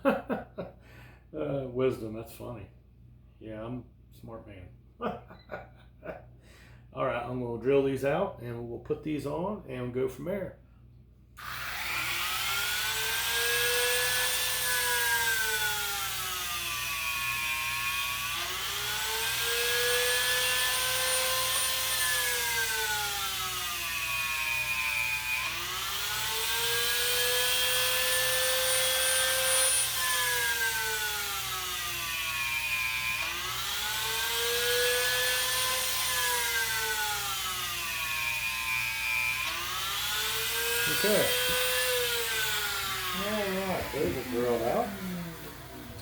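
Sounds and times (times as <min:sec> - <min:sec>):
electric drill boring wood: 0:11.4 - 0:46.0.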